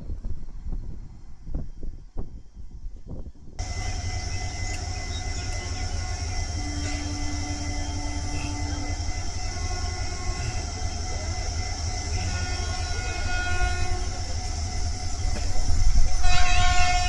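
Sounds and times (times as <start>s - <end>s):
train rumbling: 0.0s - 17.0s
train horn: 3.6s - 17.0s.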